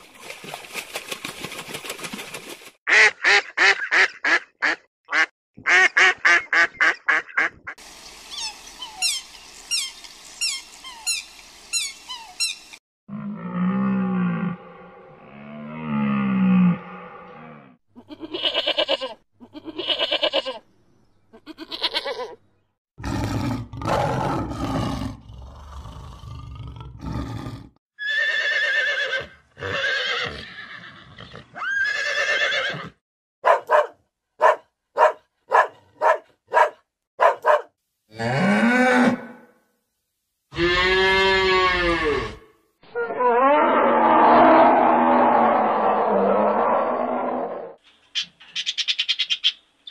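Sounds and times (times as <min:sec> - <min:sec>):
cow mooing: 0:40.6 - 0:42.5.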